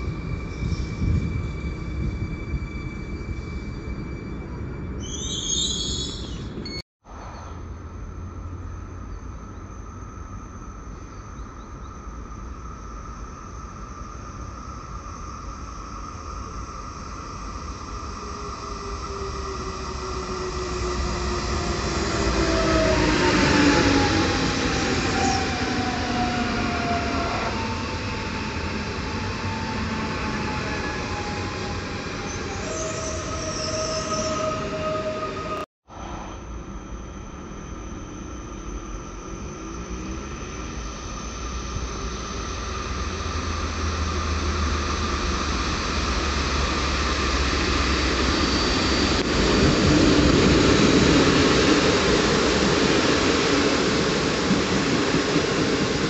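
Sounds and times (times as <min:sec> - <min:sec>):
train motor whine: 0:12.0 - 0:56.0.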